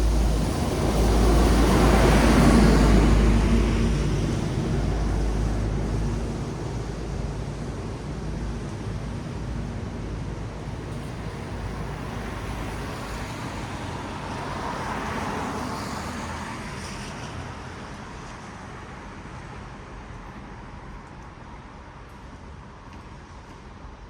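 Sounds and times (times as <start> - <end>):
tyres hissing on wet road: 0.0 - 8.2, 10.5 - 20.6
low traffic rumble: 0.0 - 24.0.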